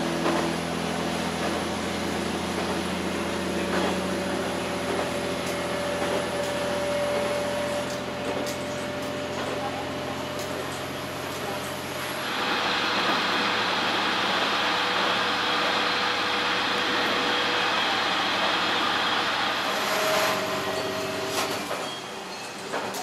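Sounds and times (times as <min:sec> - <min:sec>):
railcar engine drone: 0:00.0 - 0:23.0.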